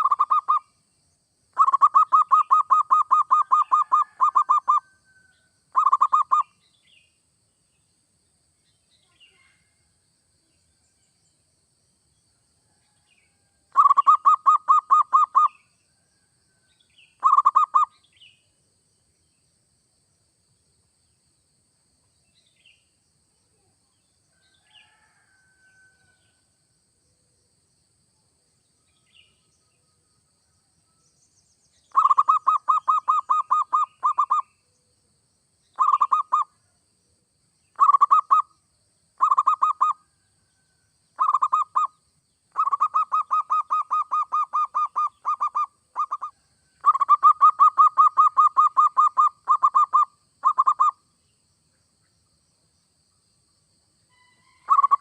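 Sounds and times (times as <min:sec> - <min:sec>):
dove cooing song: 0:00.0 - 0:00.6, 0:01.6 - 0:04.9, 0:05.7 - 0:06.5, 0:13.7 - 0:15.6, 0:17.2 - 0:17.9, 0:31.9 - 0:34.5, 0:35.8 - 0:36.5, 0:37.8 - 0:38.4, 0:39.2 - 0:40.0, 0:41.2 - 0:41.9, 0:42.5 - 0:51.0, 0:54.6 - 0:55.0
faint bird chirps: 0:00.0 - 0:00.9, 0:01.5 - 0:11.5, 0:12.6 - 0:19.5, 0:22.0 - 0:26.4, 0:28.5 - 0:52.3, 0:54.0 - 0:55.0.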